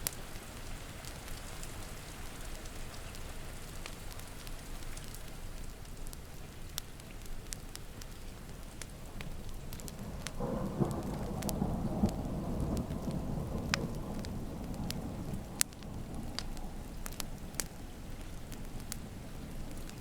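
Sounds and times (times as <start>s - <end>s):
steady rain: 0.0s - 20.0s
wood fire crackling: 0.0s - 20.0s
low thunder rumble: 8.6s - 20.0s.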